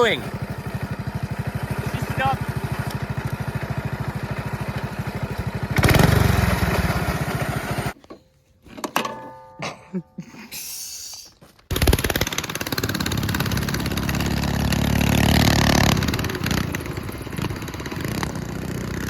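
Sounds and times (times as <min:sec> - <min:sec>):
mini bike engine revving: 0:00.0 - 0:08.0, 0:11.7 - 0:19.0.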